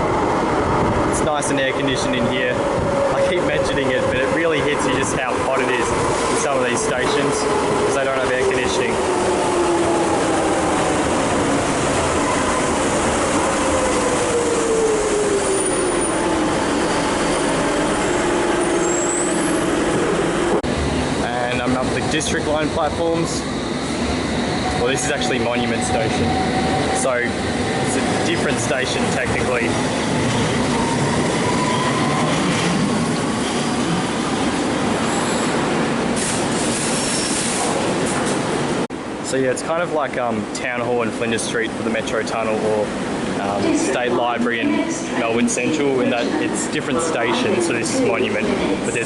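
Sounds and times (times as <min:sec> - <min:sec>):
train rumbling: 0:00.0 - 0:49.0
high squeals: 0:12.0 - 0:20.0, 0:23.5 - 0:28.8, 0:29.6 - 0:32.7.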